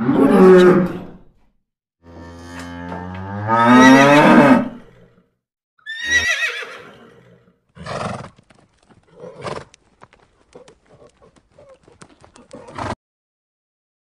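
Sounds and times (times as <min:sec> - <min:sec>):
horse whinnying: 0:03.5 - 0:05.0, 0:05.8 - 0:08.4, 0:09.1 - 0:09.7.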